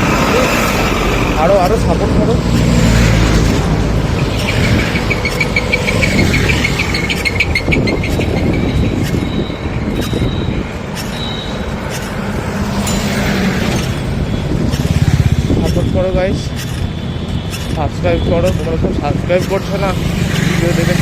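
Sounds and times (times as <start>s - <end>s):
wind rumble: 0.0s - 19.3s
road traffic: 0.0s - 21.0s
rapid high chirps: 4.0s - 12.1s.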